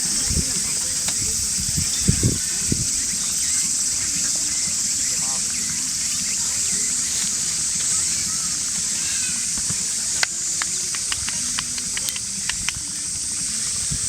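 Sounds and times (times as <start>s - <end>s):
fire hissing: 0.0s - 14.0s
campfire popping: 7.2s - 13.1s.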